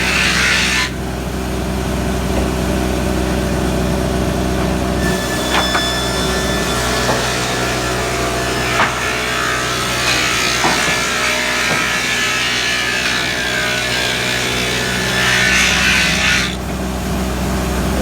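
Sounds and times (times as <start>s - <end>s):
saw cutting through timber: 0.0s - 1.3s, 5.0s - 17.2s
knocks: 8.6s - 13.0s.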